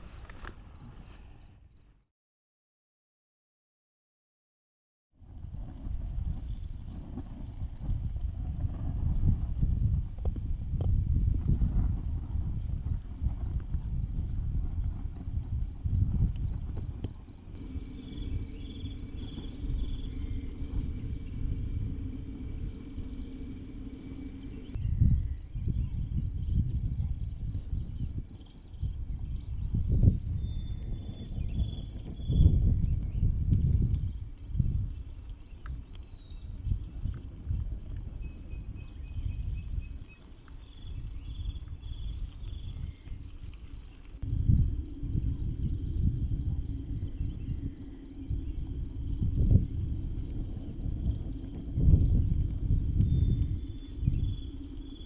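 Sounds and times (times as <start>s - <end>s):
insect chirping: 0.0s - 2.1s, 5.2s - 55.0s
faint hum: 5.2s - 55.0s
low rumble: 5.2s - 55.0s
rapid high-pitched chirping: 34.1s - 44.3s.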